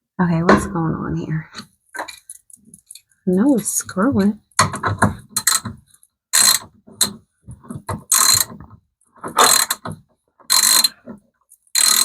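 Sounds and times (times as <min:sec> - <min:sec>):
ratchet wrench clicking: 0:06.4 - 0:07.1, 0:08.1 - 0:08.5, 0:09.4 - 0:09.8, 0:10.5 - 0:10.9, 0:11.5 - 0:12.0.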